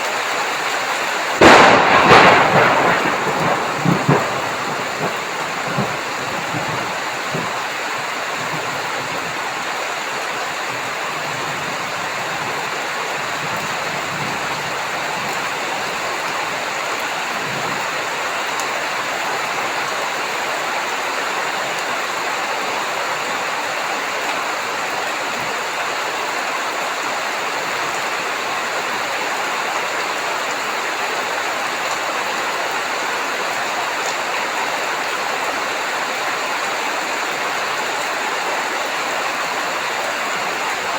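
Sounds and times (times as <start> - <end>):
heavy rain hissing: 0.0 - 40.9
low thunder rumble: 1.4 - 9.4.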